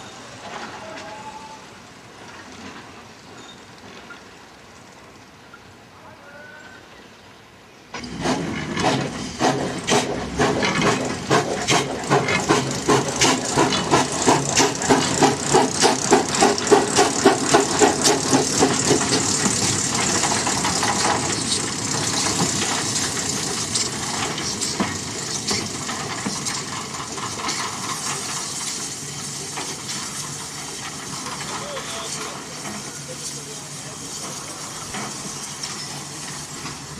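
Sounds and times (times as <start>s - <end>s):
rush of steam: 0.0s - 36.9s
steam locomotive exhaust chuffs: 8.0s - 36.9s.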